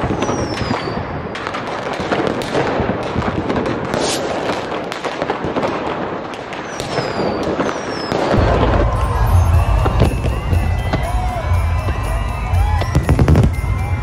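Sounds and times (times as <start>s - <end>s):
firework falling whistle: 0.0s - 1.6s, 6.5s - 14.0s
fireworks crackling and popping: 0.0s - 14.0s.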